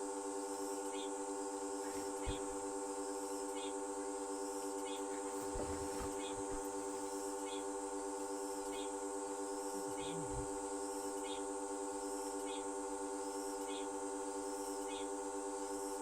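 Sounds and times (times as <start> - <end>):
electric air pump humming: 1.7 - 3.4, 4.8 - 8.5.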